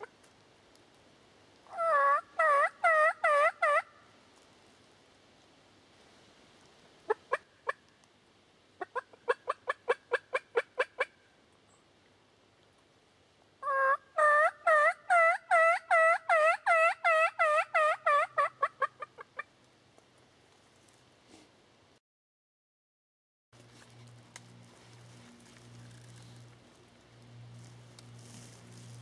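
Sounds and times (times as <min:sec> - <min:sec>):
turkey yelps: 0:01.7 - 0:03.9, 0:13.6 - 0:19.5.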